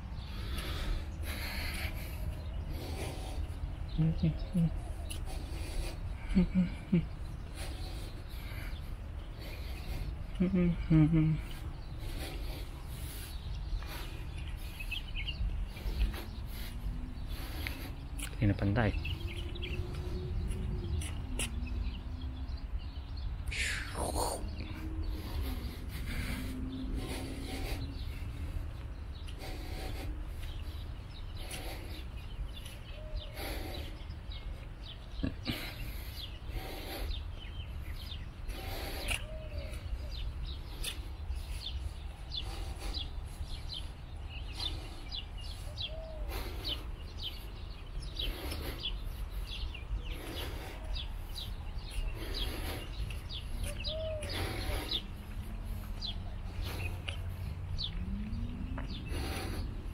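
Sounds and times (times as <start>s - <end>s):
small birds chirping: 0.0s - 59.9s
wind rumble on microphone: 1.9s - 33.3s, 36.8s - 59.9s
footsteps on paving: 11.4s - 22.0s, 27.0s - 35.2s, 37.4s - 59.9s.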